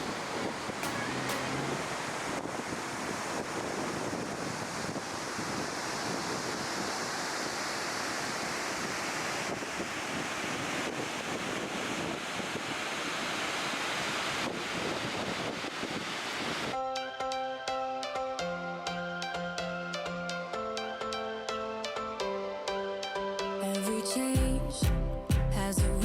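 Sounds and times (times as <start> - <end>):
water rushing: 0.0 - 14.9
wind buffeting microphone: 0.0 - 16.7.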